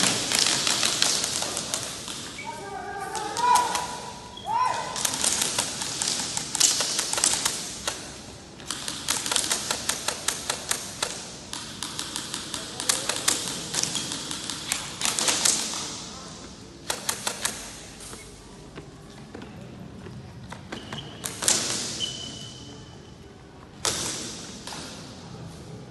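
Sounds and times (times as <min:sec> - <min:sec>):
airsoft guns firing: 0:00.0 - 0:02.3, 0:03.1 - 0:04.2, 0:04.8 - 0:16.1, 0:16.8 - 0:18.0, 0:23.8 - 0:25.1.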